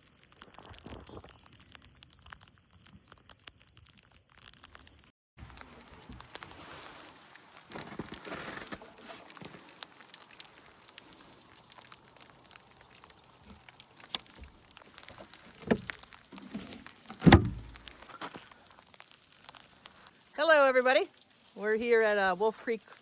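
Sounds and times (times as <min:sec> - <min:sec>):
ice pellets and rain pattering: 0:00.0 - 0:23.0
dull thumps: 0:15.5 - 0:18.0.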